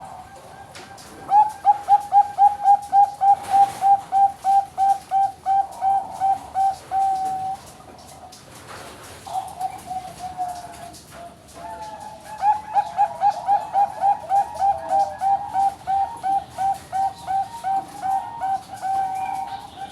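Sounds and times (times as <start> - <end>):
dove cooing song: 0.0 - 8.4, 9.2 - 19.9.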